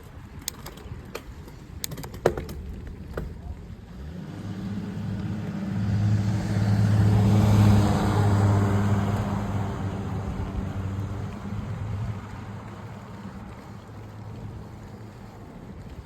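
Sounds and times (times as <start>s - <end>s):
vehicle passing by: 3.6s - 16.0s.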